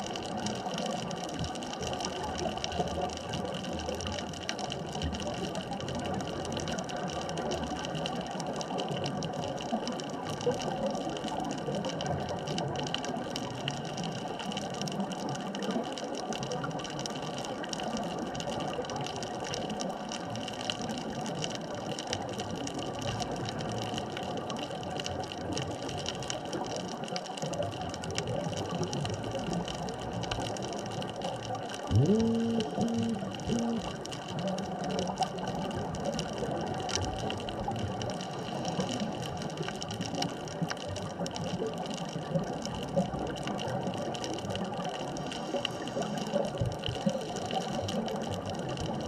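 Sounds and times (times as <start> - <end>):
fine crackling clicks: 0.0 - 49.0
underwater wash: 0.0 - 49.0
faint steady hum: 28.2 - 40.3.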